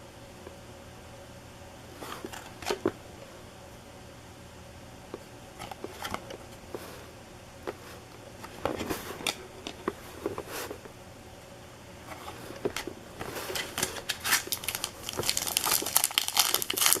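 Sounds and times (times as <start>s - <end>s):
steady low hum: 0.0s - 17.0s
cards being flipped through: 12.1s - 17.0s.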